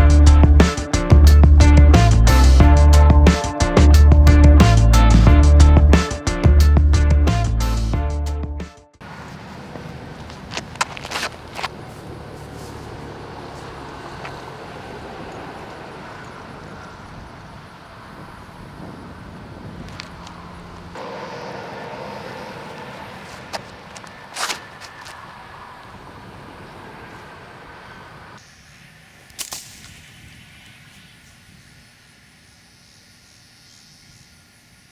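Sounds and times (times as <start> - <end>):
outdoor background noise: 9.0 - 34.9.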